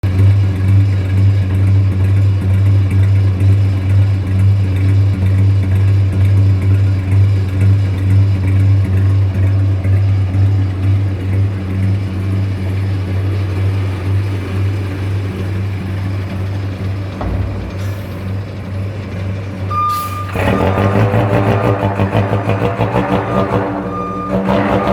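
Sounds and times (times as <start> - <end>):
diesel truck engine idling: 0.0 - 24.9.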